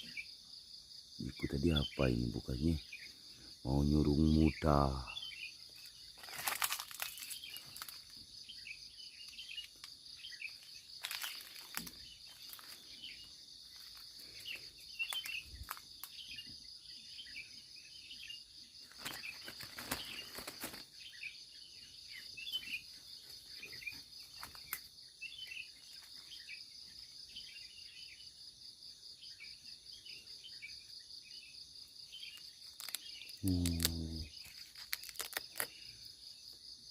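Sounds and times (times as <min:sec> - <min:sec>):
cricket trill: 0:00.0 - 0:36.9
insect chirps: 0:00.0 - 0:36.9.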